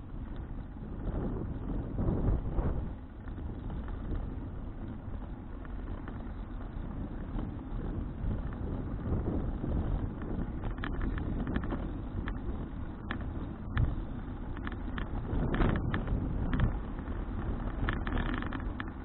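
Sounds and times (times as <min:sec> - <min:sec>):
wind buffeting a microphone: 0:00.0 - 0:19.0
clicks and rattles: 0:10.2 - 0:19.0.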